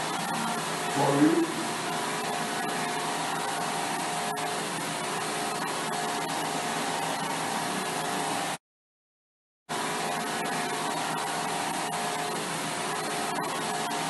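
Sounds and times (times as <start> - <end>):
faint hum: 0.0 - 2.6
machine whirring: 0.0 - 8.6.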